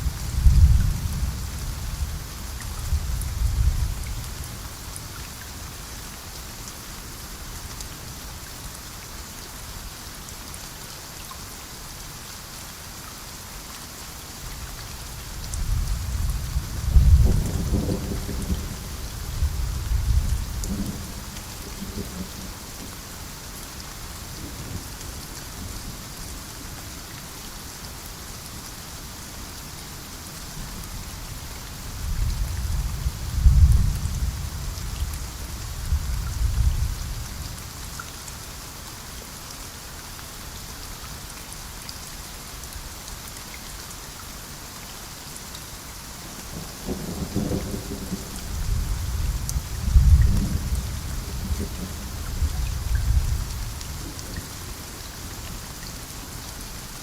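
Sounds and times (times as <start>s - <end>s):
steady rain falling: 0.0s - 57.0s
thunder rumbling: 15.7s - 22.5s, 46.8s - 54.5s.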